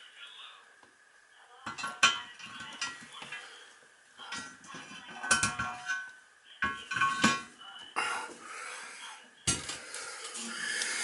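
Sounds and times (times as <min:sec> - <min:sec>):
hardware clinking and knocking: 0:04.3 - 0:07.5.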